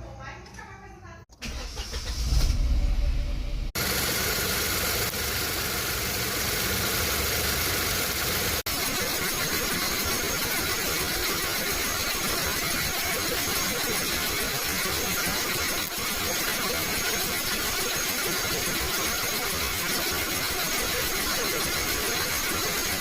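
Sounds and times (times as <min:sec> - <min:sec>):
car engine starting and running: 0:01.3 - 0:11.9.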